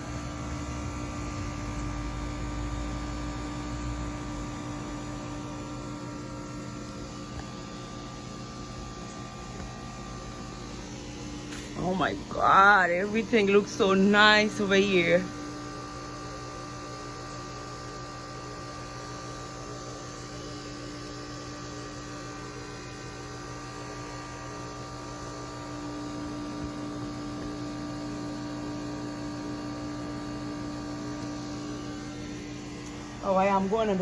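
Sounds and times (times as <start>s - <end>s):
low hum of held tones: 0.0s - 34.0s.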